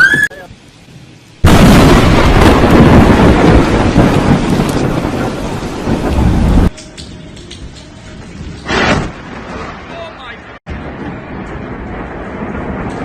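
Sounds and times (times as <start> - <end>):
thunder crack and rumble: 0.8 - 13.0.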